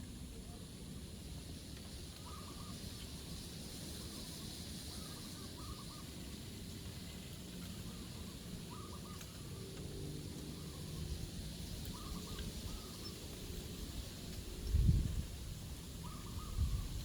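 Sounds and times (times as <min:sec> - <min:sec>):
short wavering bird calls: 0:02.2 - 0:03.1, 0:04.0 - 0:06.2, 0:07.9 - 0:09.6, 0:11.9 - 0:13.3, 0:16.0 - 0:17.0
wind buffeting microphone: 0:14.4 - 0:17.0.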